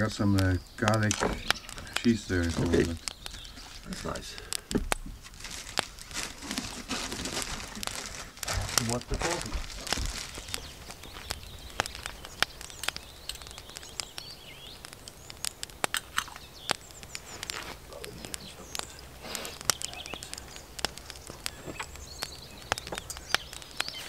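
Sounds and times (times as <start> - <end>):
sharp clicks and light knocks: 0.0 - 5.9, 7.2 - 24.0
birds chirping: 0.0 - 24.0.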